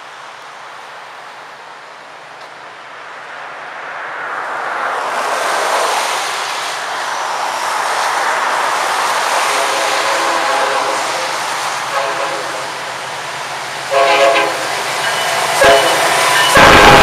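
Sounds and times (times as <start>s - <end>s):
freight train approaching: 0.0s - 17.0s
locomotive horn: 9.4s - 12.8s, 13.9s - 17.0s.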